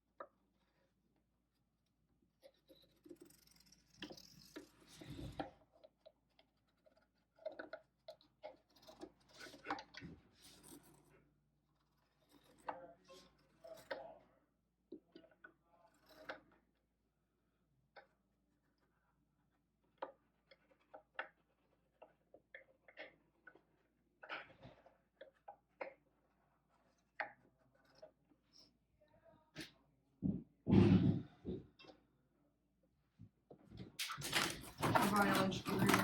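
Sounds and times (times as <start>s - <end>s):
scraping and rustling: 34.0s - 36.0s.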